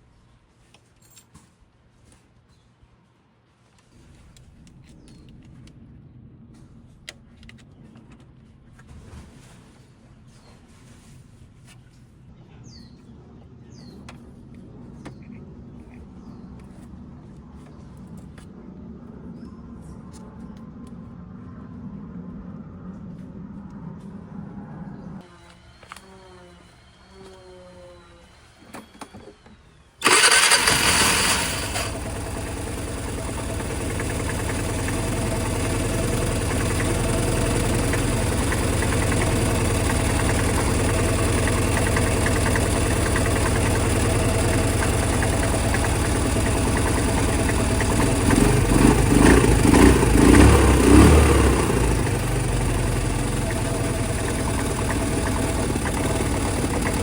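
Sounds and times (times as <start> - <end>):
scooter engine starting and idling: 29.3 - 57.0.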